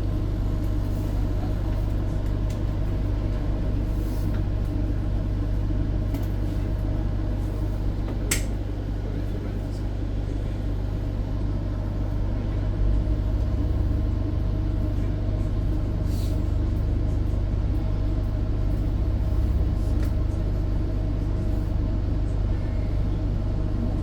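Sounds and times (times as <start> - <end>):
tram rumbling on track: 0.0 - 24.0.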